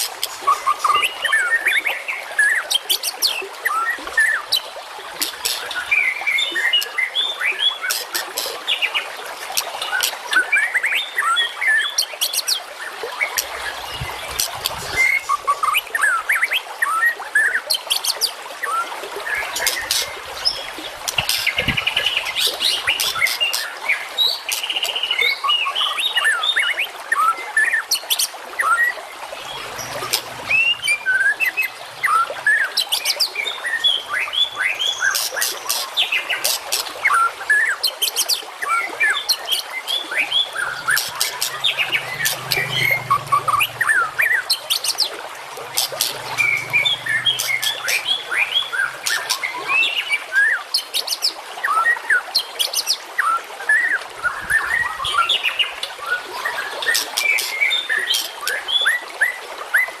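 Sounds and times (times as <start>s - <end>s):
chorus of small birds chirping: 0.0s - 4.6s, 5.2s - 16.5s, 19.2s - 25.9s, 29.4s - 37.2s, 39.0s - 51.3s, 54.4s - 58.8s.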